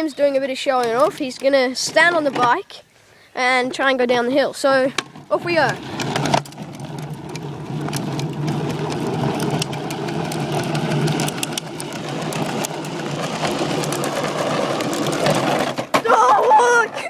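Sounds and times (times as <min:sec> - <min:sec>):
small engine running: 0:05.8 - 0:15.7
rattling clicks: 0:05.9 - 0:16.0.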